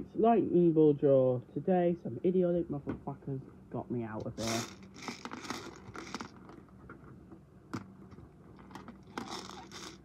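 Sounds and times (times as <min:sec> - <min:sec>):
steady low hum: 0:00.0 - 0:10.0
rustling and scraping handling: 0:04.2 - 0:10.0.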